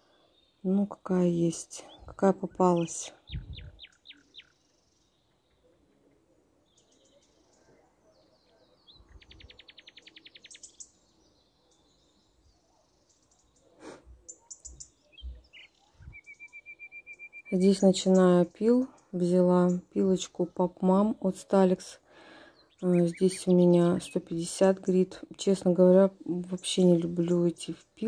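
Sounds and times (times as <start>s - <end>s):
bird chirping and trilling: 1.8s - 6.2s, 6.8s - 18.6s, 22.4s - 24.6s.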